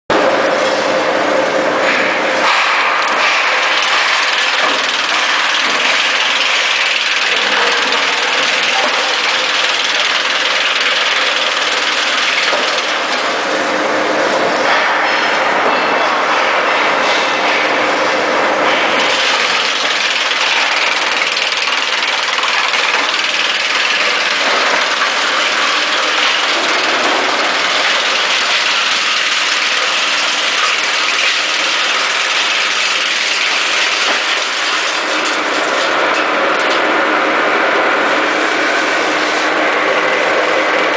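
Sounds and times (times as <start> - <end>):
wood chipper running: 0.1 - 15.2, 17.5 - 40.9.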